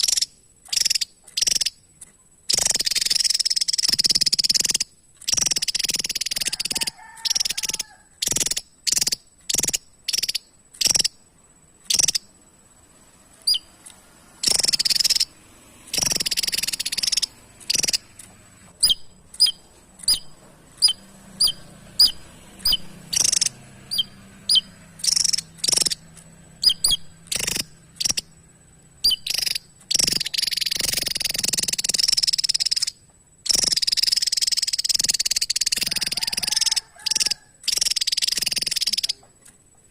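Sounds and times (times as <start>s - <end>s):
buzzy jumbled bird phrases: 0.0s - 39.4s
bird singing high notes: 18.8s - 28.2s.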